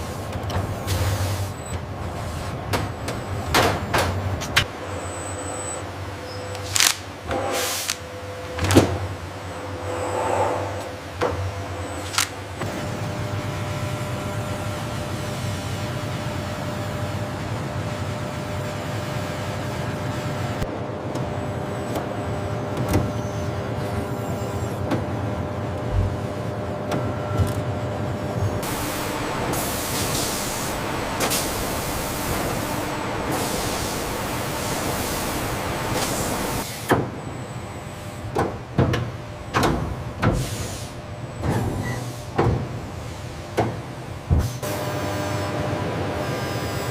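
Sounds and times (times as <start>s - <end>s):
machinery hum: 0.0s - 41.6s
noise wash: 9.5s - 11.9s
steady hiss: 28.6s - 36.6s.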